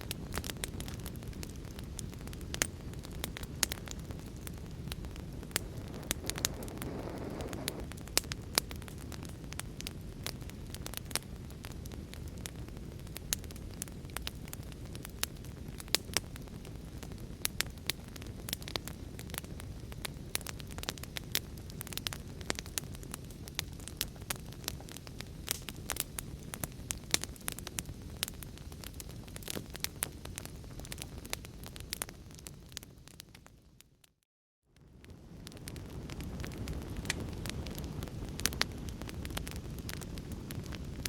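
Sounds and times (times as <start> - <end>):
fire crackling and popping: 0.0 - 34.2, 34.8 - 41.0
rushing noise: 5.6 - 7.9.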